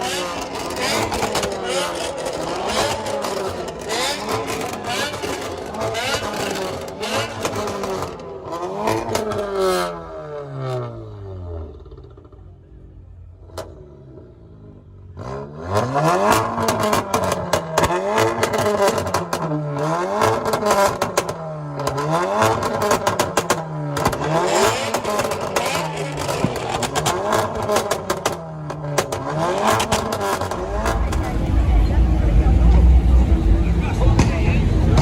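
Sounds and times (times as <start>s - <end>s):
car engine revving: 0.0s - 35.0s
exhaust crackles: 15.2s - 35.0s.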